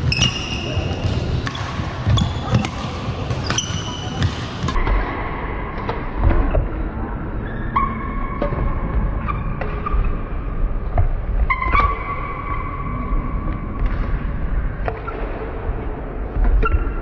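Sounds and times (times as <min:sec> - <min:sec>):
shoes squeaking on floor: 0:00.0 - 0:04.7
racket hitting shuttlecock: 0:00.0 - 0:05.0.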